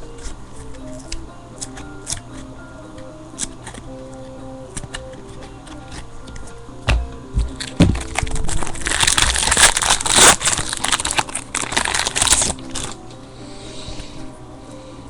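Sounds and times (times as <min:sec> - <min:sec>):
faint background music: 0:00.0 - 0:15.0
foil wrapper crinkling: 0:07.4 - 0:13.0.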